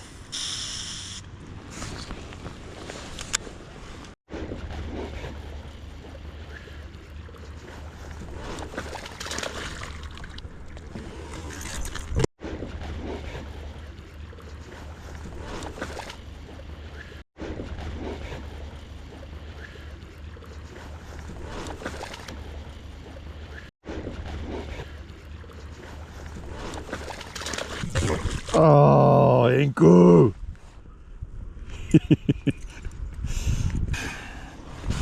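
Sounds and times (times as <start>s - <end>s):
rain and water: 0.0s - 16.9s, 17.9s - 23.4s, 24.1s - 30.3s
wind rumbling on microphone: 27.7s - 28.6s, 30.3s - 35.0s.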